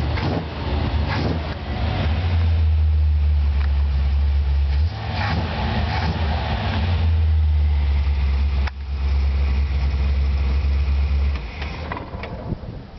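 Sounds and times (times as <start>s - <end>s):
car engine running: 0.0s - 12.2s.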